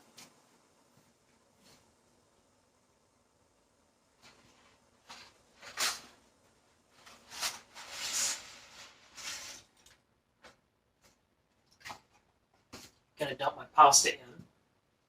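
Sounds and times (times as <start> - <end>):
rustling and scraping handling noises: 4.2 - 6.2, 6.9 - 13.1.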